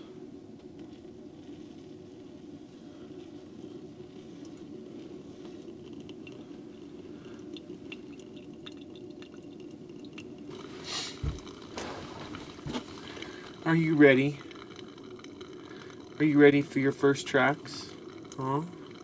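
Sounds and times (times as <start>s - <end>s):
faint ticks and clicks: 0.6s - 19.0s
steady low hum: 9.6s - 19.0s.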